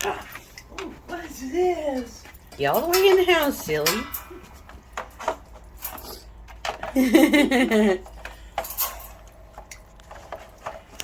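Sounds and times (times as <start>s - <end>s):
metallic clinks of dog crate: 1.8s - 7.0s, 8.4s - 11.0s.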